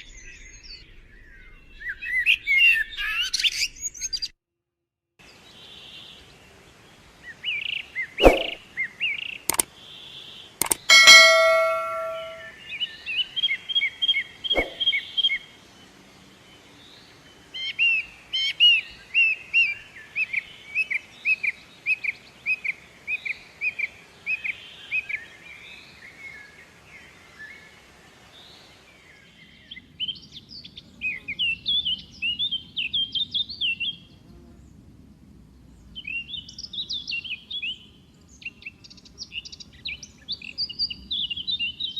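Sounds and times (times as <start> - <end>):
loud short ringing tone: 10.6 - 12.5
sharp clicks: 10.6 - 12.5.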